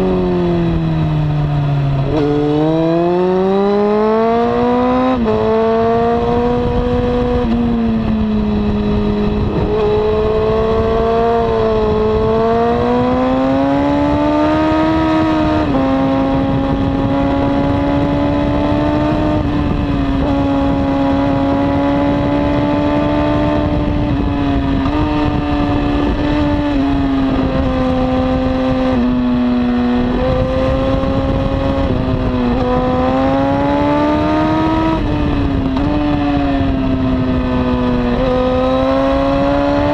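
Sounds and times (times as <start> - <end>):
motorcycle engine revving high: 0.0 - 39.9
wind noise: 0.0 - 39.9.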